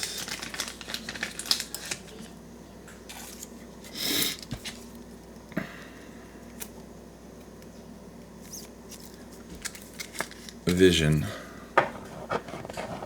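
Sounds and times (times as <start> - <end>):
cards and wrapper rustling: 0.0 - 2.4, 3.0 - 5.1, 8.5 - 10.8.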